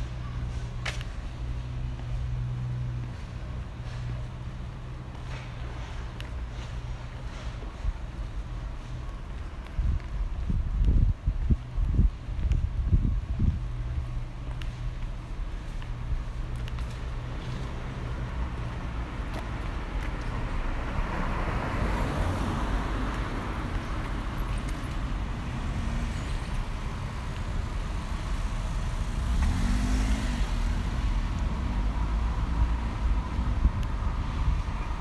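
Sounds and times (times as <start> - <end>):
steady low traffic rumble: 0.0 - 35.0
car passing: 16.8 - 35.0.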